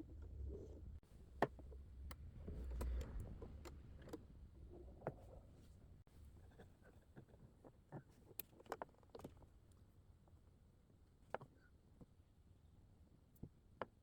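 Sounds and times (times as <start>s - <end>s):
low rumble: 1.6s - 6.0s.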